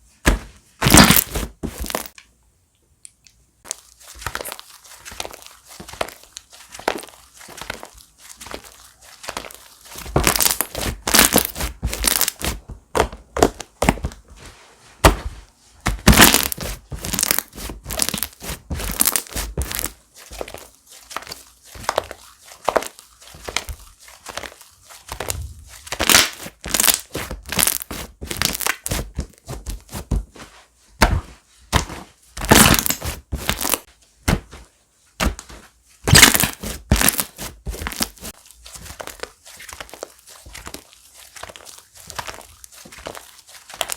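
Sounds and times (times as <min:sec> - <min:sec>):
slime crackling and popping: 0:00.8 - 0:02.2, 0:03.6 - 0:12.6, 0:15.9 - 0:29.4, 0:32.4 - 0:34.4, 0:36.1 - 0:43.9.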